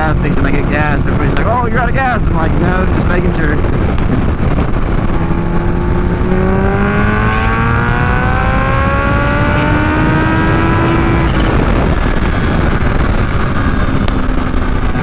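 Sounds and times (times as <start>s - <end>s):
motorcycle accelerating: 0.0s - 15.0s
wind rumble on microphone: 0.0s - 15.0s.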